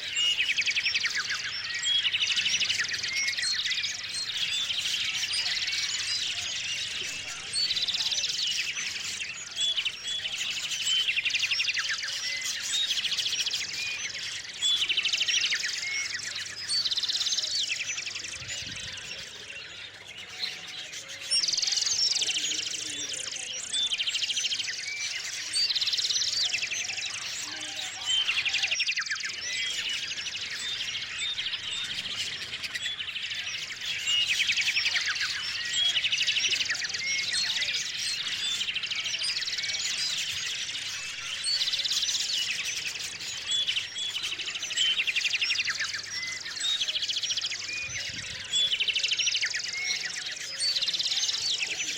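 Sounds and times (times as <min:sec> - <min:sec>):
small songbirds chirping: 0:00.0 - 0:51.9.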